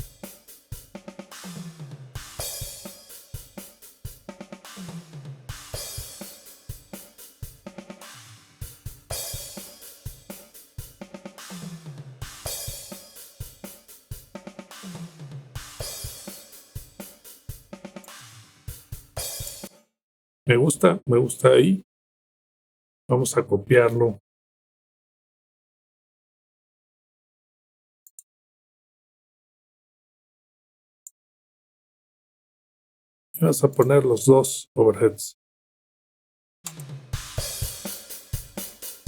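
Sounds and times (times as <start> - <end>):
hi-hat: 0.0 - 4.8, 5.6 - 7.8, 8.6 - 14.4, 15.7 - 19.7, 37.2 - 39.0
crash cymbals: 0.0 - 14.2, 37.2 - 39.0
snare drum: 0.0 - 19.7, 36.7 - 39.0.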